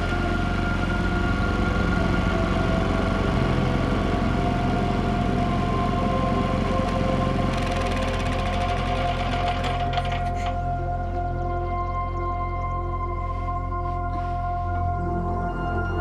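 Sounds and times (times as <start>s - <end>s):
generator engine running: 0.0s - 11.3s
held tones: 4.7s - 10.7s.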